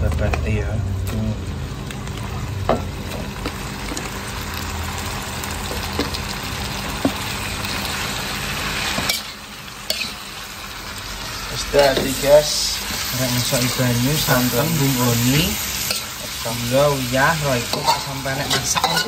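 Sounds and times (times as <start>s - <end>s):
food sizzling in a wok: 0.0s - 19.0s
metal spatula clinking on pan: 17.7s - 19.0s.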